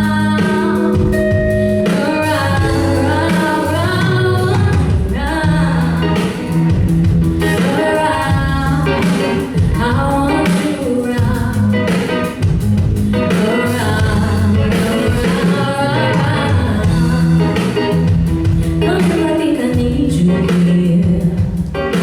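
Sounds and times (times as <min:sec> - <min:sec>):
lead vocal singing: 0:00.0 - 0:06.7, 0:13.1 - 0:18.0
live band playing: 0:00.0 - 0:22.0.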